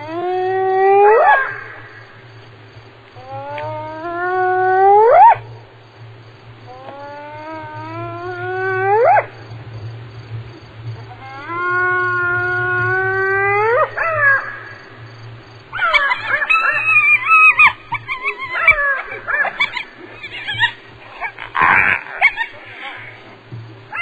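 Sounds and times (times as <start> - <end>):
hyena calling: 6.7 - 9.4, 11.1 - 15.0, 15.7 - 24.0.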